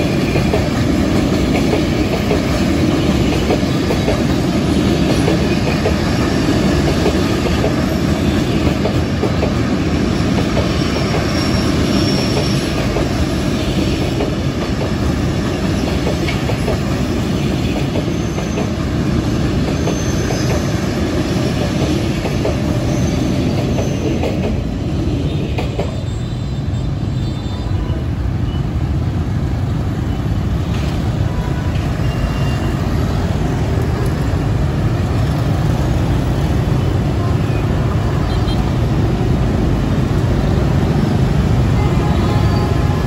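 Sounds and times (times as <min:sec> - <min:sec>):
freight train rumbling past: 0:00.0 - 0:43.0
high wheel squeals: 0:10.8 - 0:12.8.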